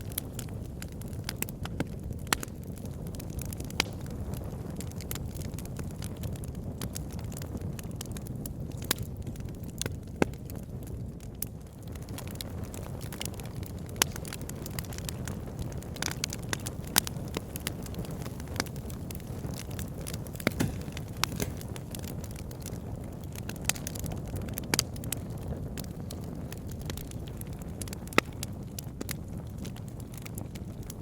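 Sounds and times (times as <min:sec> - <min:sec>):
fire crackles and pops: 0:00.0 - 0:31.0
low rumble of flames: 0:00.0 - 0:31.0.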